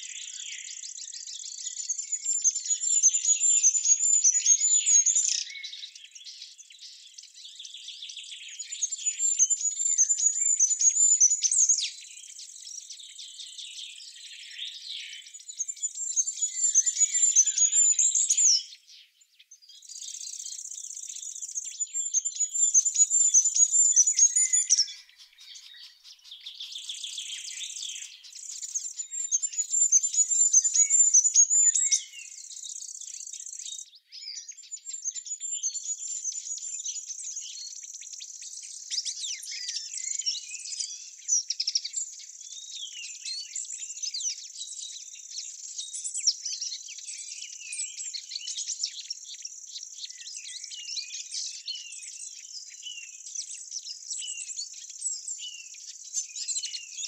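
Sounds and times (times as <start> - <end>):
birds chirping and singing: 0.0 - 57.0.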